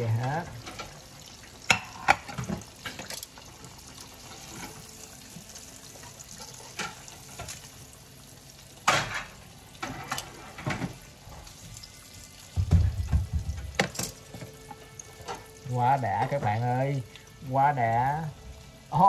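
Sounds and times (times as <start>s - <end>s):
cutlets sizzling in hot oil: 0.0s - 19.0s
metal tongs clattering on pan: 0.6s - 1.0s, 1.7s - 3.5s, 6.4s - 7.7s, 13.7s - 14.6s.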